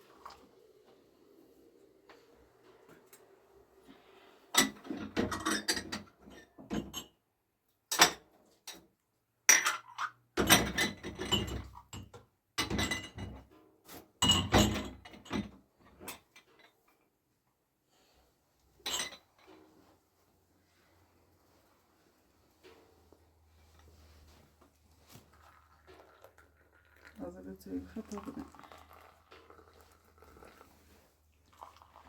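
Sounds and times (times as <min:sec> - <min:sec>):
dishes and pots clattering: 0:04.6 - 0:07.1, 0:09.5 - 0:13.5, 0:14.2 - 0:16.8, 0:18.8 - 0:19.6.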